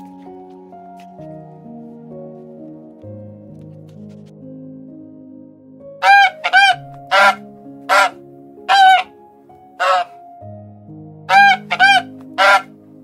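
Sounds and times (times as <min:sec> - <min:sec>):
soft background music: 0:00.0 - 0:13.0
waterfowl honking: 0:06.0 - 0:09.1, 0:09.8 - 0:10.2, 0:11.3 - 0:12.7.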